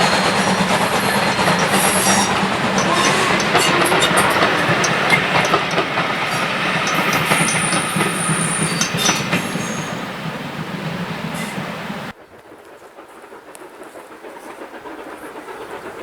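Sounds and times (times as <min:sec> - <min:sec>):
train wheel squeal: 0:00.0 - 0:12.1
train wheels clicking on rails: 0:00.0 - 0:16.0.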